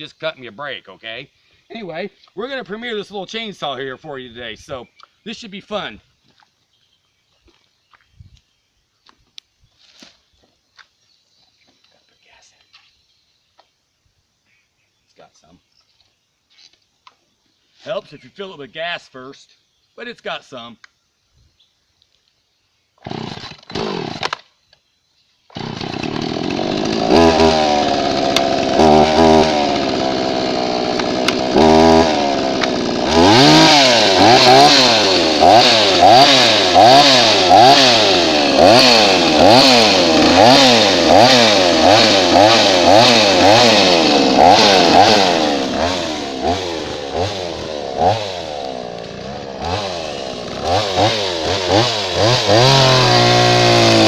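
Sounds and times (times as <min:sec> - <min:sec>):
chainsaw starting and revving: 0:23.0 - 0:24.5, 0:25.5 - 0:54.0.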